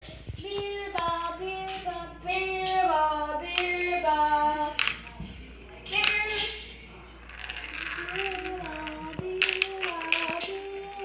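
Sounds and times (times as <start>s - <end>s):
child singing: 0.3s - 5.0s, 5.9s - 6.7s, 8.0s - 11.0s.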